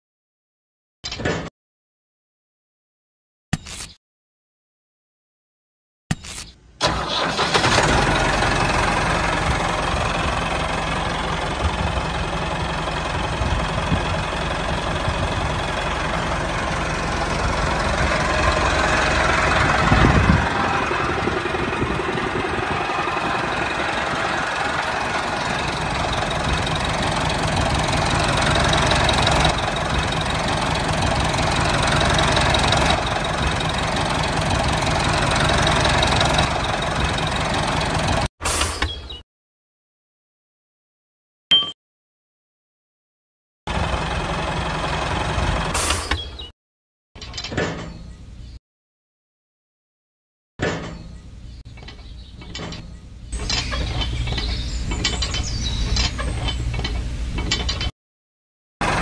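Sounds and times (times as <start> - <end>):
tractor engine chugging: 6.8 - 38.3, 43.7 - 45.8, 53.4 - 57.9.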